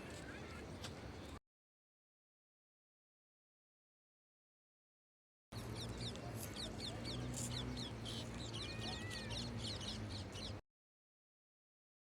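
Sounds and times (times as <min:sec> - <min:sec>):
birds chirping: 0:05.6 - 0:10.6.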